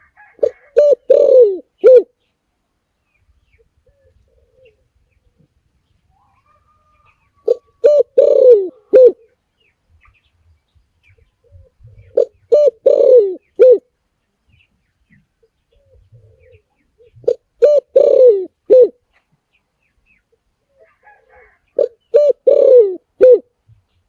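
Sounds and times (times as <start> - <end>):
dove cooing: 0.0 - 2.2, 3.8 - 5.0, 6.2 - 9.4, 11.4 - 13.9, 15.7 - 19.0, 20.7 - 23.5.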